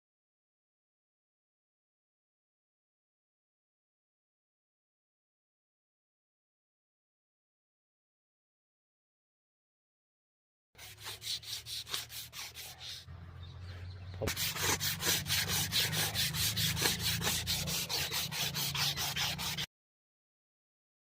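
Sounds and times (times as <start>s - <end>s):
rapid rhythmic rubbing strokes: 10.8s - 13.1s, 14.2s - 19.7s.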